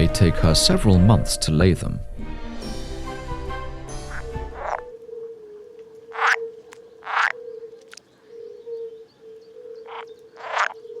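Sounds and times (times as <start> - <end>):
frog short harsh calls: 4.1 - 4.9, 6.1 - 8.0, 9.8 - 11.0
frog low wavering call: 4.1 - 11.0.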